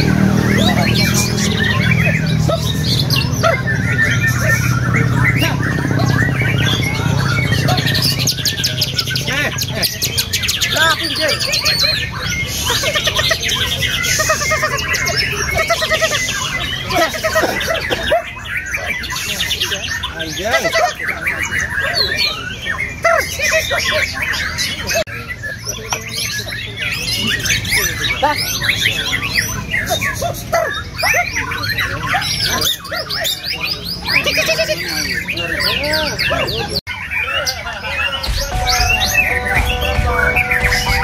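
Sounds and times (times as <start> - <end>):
birds singing in chorus: 0.0 - 41.0.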